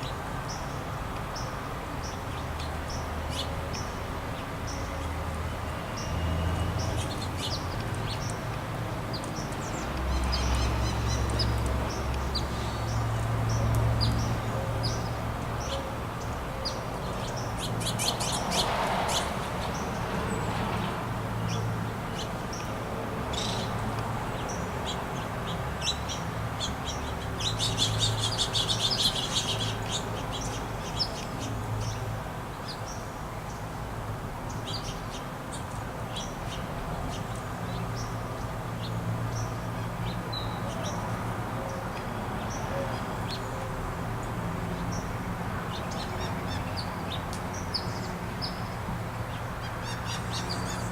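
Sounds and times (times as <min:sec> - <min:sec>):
songbirds chirping: 0:00.0 - 0:50.9.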